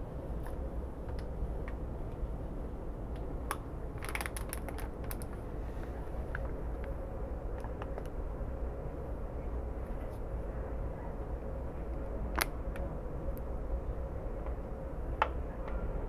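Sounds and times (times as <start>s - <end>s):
train rumbling along track: 0.0s - 16.0s
sharp clicking rattles: 4.0s - 5.4s.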